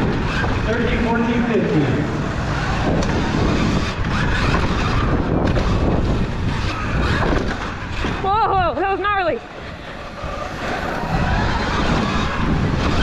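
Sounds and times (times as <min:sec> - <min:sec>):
motorbike engines revving: 0:00.0 - 0:13.0
wind rushing: 0:00.0 - 0:13.0
tyre noise: 0:02.1 - 0:13.0.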